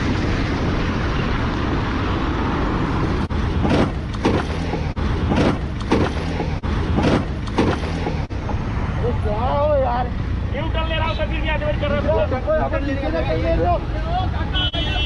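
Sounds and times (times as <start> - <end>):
rushing wind noise: 0.0 - 5.8.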